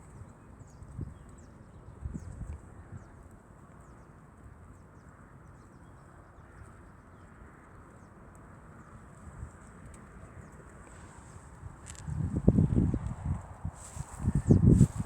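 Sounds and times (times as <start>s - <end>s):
low rustle: 13.7s - 15.0s.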